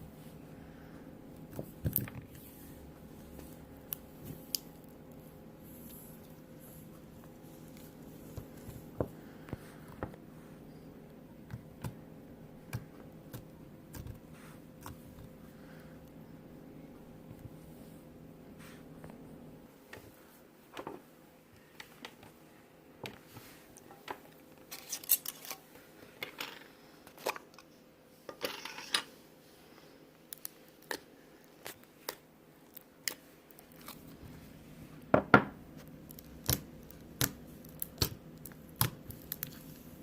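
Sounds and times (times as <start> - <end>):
slime rustling: 35.8 - 40.0
slime clicking and popping: 36.2 - 39.5.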